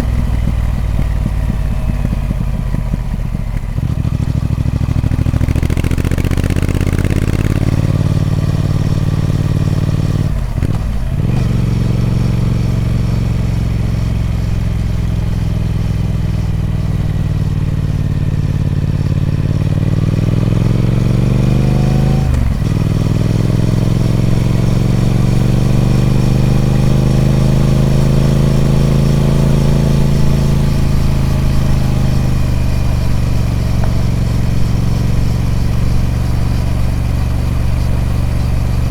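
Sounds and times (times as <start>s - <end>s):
motorcycle engine under load: 0.0s - 38.9s.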